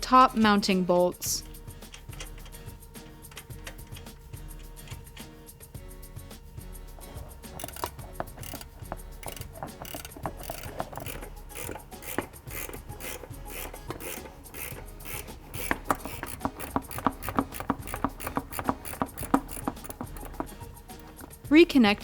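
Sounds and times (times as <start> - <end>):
ratchet wrench clicking: 1.4 - 5.6, 6.7 - 21.5.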